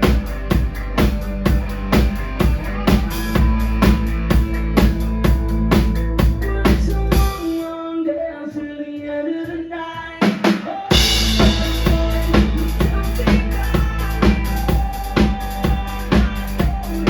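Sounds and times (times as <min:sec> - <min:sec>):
live rock band playing: 0:00.0 - 0:07.6, 0:10.9 - 0:17.0
drum hits: 0:10.2 - 0:17.0
loud cymbal crash: 0:10.9 - 0:12.8.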